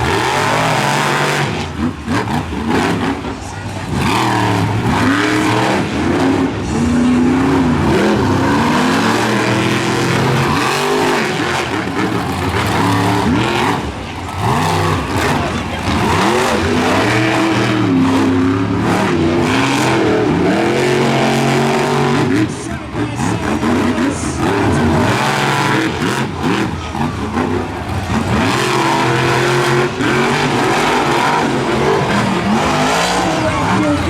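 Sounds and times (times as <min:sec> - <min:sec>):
monster truck engines revving: 0:00.0 - 0:34.0.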